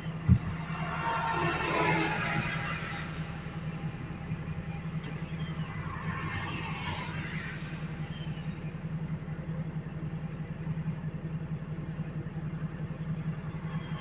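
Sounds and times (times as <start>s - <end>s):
garbage truck engine idling: 7.8s - 14.0s.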